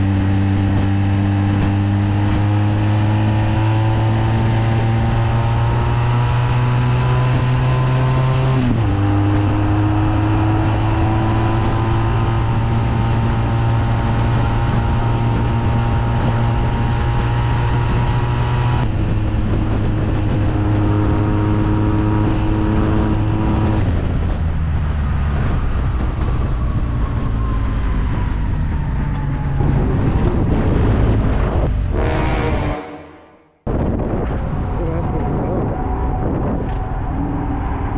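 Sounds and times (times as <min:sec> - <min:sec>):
motorcycle engine accelerating: 0:00.0 - 0:24.0, 0:31.7 - 0:33.5
wind noise: 0:00.0 - 0:37.9.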